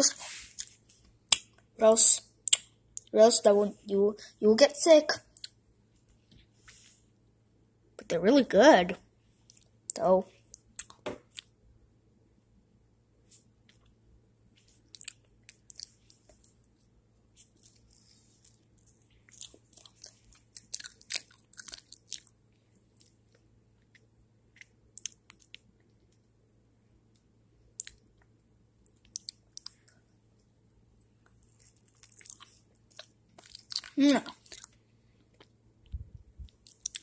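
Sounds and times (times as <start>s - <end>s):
chewing and lip-smacking: 10.5s - 11.5s, 14.7s - 16.6s, 17.4s - 23.2s, 23.8s - 26.2s, 28.9s - 30.0s, 31.0s - 37.0s.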